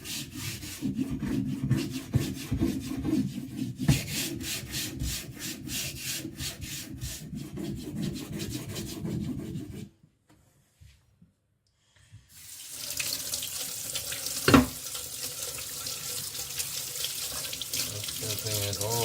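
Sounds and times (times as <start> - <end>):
scraping on wet whetstone: 0.0 - 9.9.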